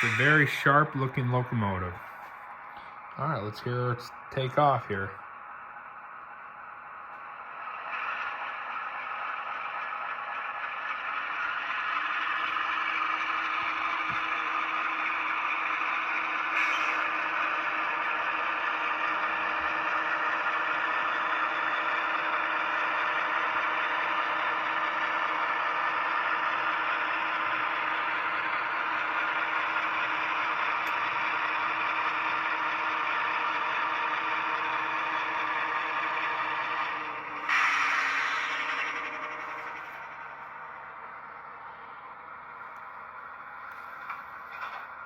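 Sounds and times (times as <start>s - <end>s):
model diesel engine sound from speaker: 0.0s - 45.0s
model train clatter on rails: 7.8s - 40.7s, 42.6s - 45.0s.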